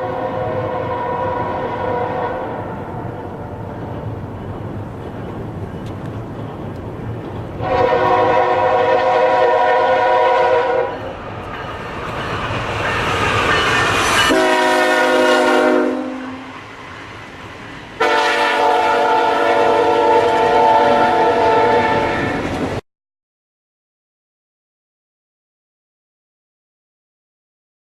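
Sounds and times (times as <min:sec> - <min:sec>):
train air horn blasts: 0:00.0 - 0:03.6, 0:07.6 - 0:11.2, 0:14.2 - 0:16.6, 0:18.0 - 0:22.5
train rumble: 0:00.0 - 0:22.8.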